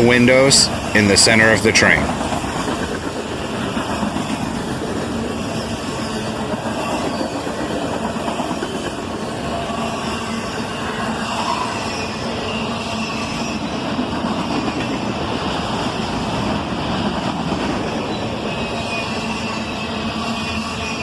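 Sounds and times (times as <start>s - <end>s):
train wheels rumbling and rattling: 0.0s - 21.0s
high-pitched wheel squeal: 10.2s - 13.7s.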